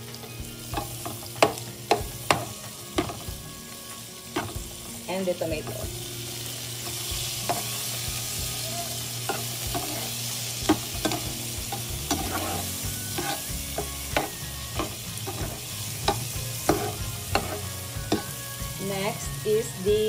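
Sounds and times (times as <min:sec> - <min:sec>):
onion sizzling in frying pan: 0:00.0 - 0:20.0
utensil clicking against pan: 0:13.2 - 0:18.4.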